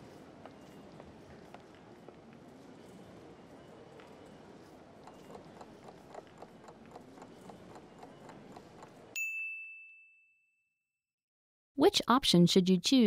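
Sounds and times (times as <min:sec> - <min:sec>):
bright ding: 0:09.2 - 0:10.7.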